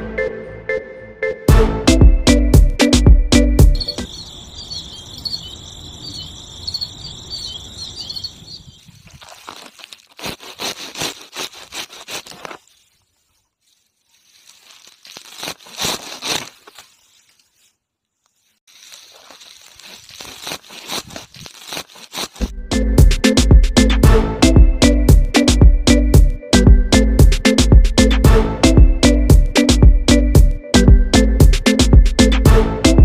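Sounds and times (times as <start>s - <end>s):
crickets chirping: 3.6s - 9.8s
grass rustling: 3.7s - 22.5s
sickle snipping grass: 8.9s - 22.5s.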